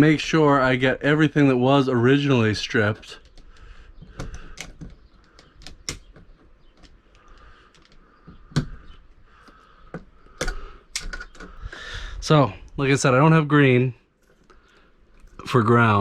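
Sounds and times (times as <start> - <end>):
light clicks of wires handled: 2.8 - 11.7.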